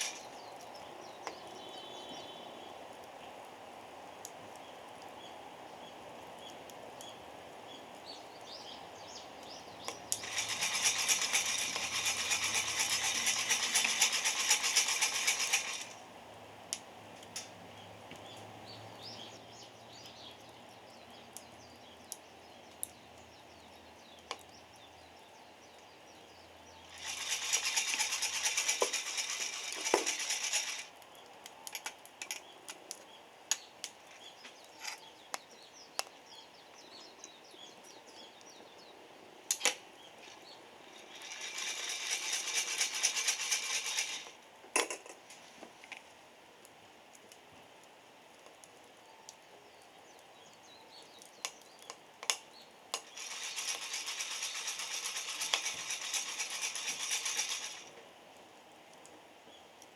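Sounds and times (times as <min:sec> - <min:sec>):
coffee beans rattling in roaster: 0:10.2 - 0:16.0, 0:27.0 - 0:30.9, 0:41.0 - 0:44.3, 0:53.0 - 0:57.9
sharp pops and crackles: 0:39.5 - 0:40.4, 0:50.5 - 0:58.0.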